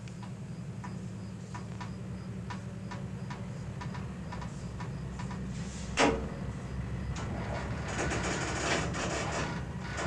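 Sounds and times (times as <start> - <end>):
light metallic ticks: 0.0 - 5.5
freight train low hum: 0.0 - 10.0.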